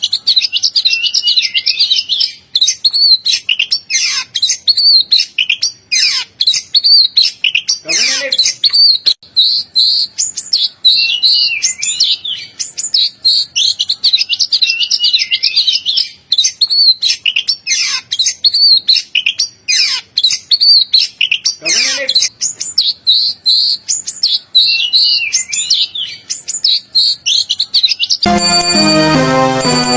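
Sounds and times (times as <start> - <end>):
bird singing whistles and chirps: 0.0 - 7.8, 8.4 - 21.6, 22.4 - 28.2.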